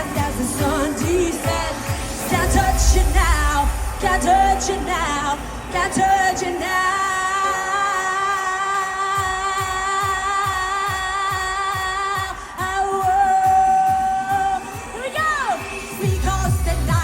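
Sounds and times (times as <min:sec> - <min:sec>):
steady kick drum: 0:00.0 - 0:05.9
live band playing: 0:00.0 - 0:16.9
woman singing with vibrato: 0:00.0 - 0:17.0.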